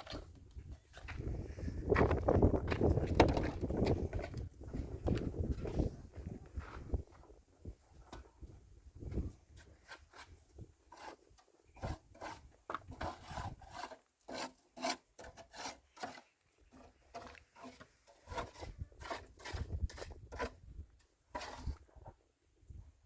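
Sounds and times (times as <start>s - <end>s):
rubbing and scraping strokes: 9.1s - 22.1s.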